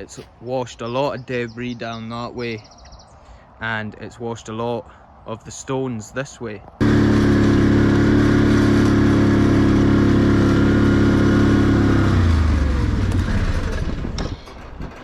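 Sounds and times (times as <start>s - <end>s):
vehicle engine running: 6.8s - 15.0s.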